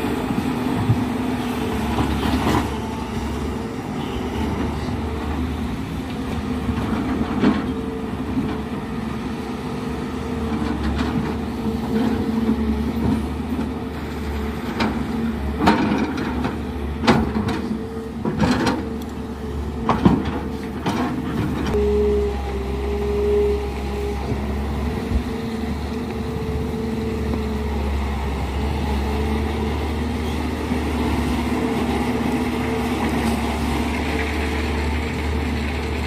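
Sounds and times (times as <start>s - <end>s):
excavator engine running: 0.0s - 36.0s.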